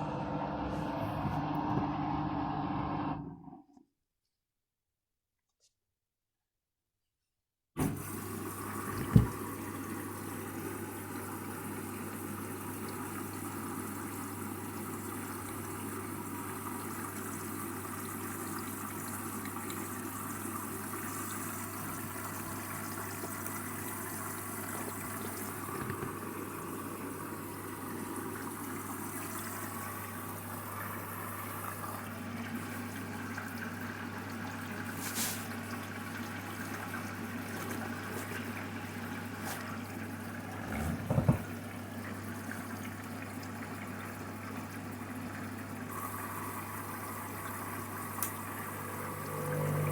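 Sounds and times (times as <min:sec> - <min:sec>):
low hum: 0:00.0 - 0:03.5
water rushing in washing machine: 0:00.0 - 0:03.6, 0:07.8 - 0:49.9.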